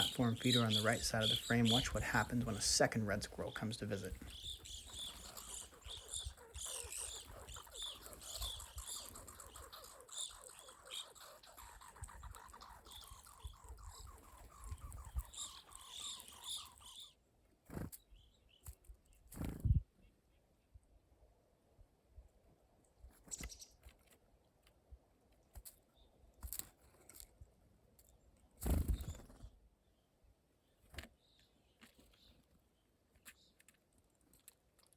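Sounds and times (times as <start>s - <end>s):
flock of birds calling: 0.0s - 17.1s.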